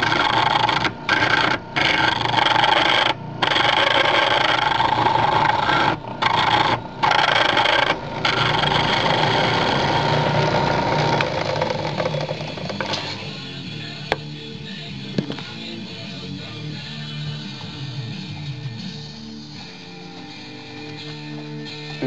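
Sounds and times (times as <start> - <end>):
chisel cutting wood on lathe: 0.0 - 13.5.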